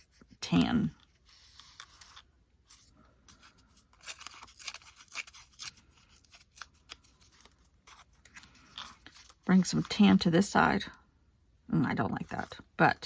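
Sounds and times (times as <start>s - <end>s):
paper tearing and rustling: 1.2s - 9.5s.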